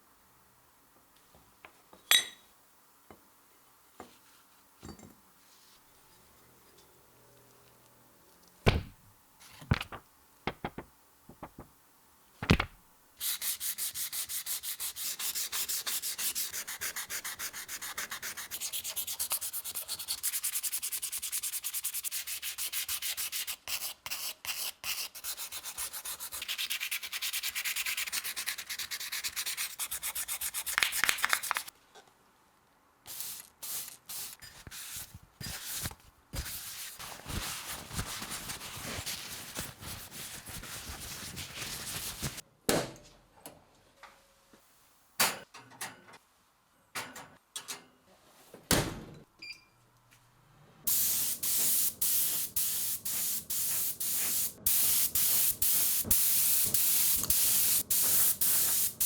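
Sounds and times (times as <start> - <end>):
hand sanding strokes: 13.2 - 31.7, 50.9 - 59.0.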